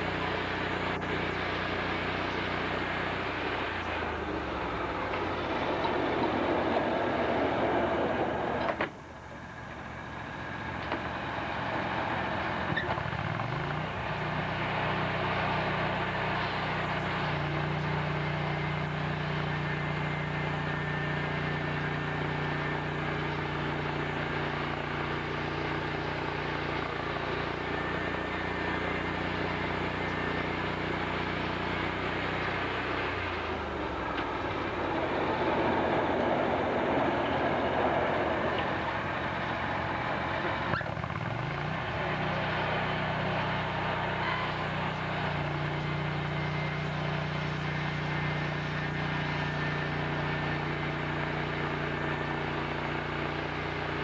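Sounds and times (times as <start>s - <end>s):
motor hum: 0.0s - 54.0s
noisy sawmill machinery: 0.0s - 54.0s.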